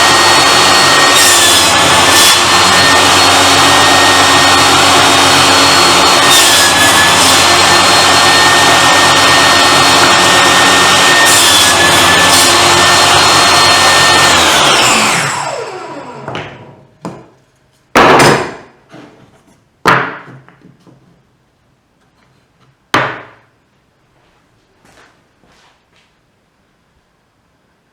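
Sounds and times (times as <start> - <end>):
table saw motor whining: 0.0 - 16.9
sharp wooden knocks: 18.0 - 18.7, 19.8 - 20.8, 23.0 - 23.5.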